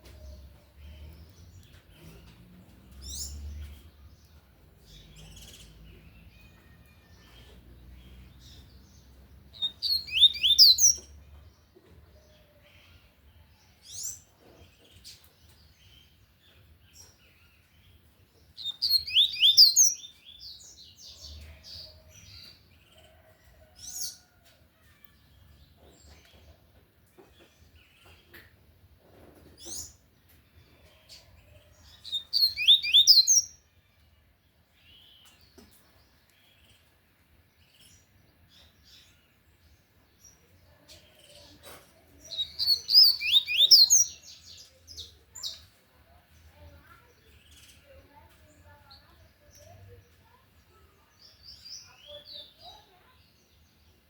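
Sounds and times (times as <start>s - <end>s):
bird song of rapid high notes: 0.0s - 11.6s, 12.9s - 23.3s, 29.6s - 37.0s, 42.2s - 45.7s.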